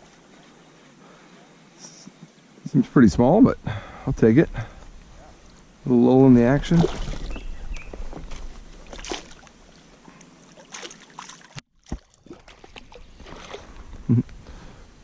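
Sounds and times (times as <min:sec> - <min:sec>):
paddle splashes and drips: 0:06.7 - 0:07.4, 0:08.3 - 0:13.8.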